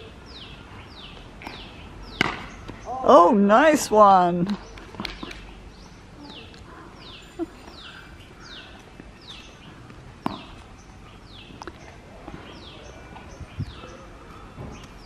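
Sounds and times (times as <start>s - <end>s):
bird calling: 4.6s - 15.0s.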